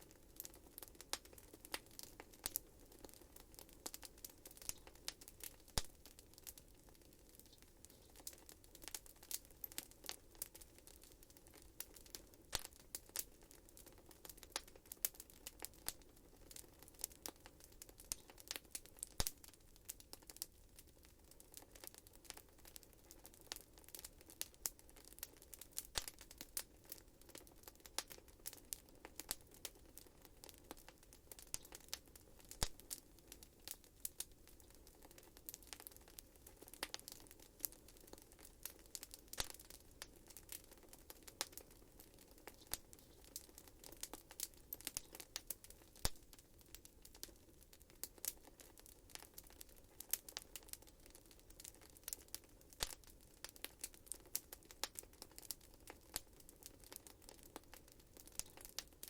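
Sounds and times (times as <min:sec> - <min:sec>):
low hiss of flames: 0:00.0 - 0:13.3, 0:31.4 - 0:47.2
wood fire crackling and popping: 0:00.0 - 0:59.0.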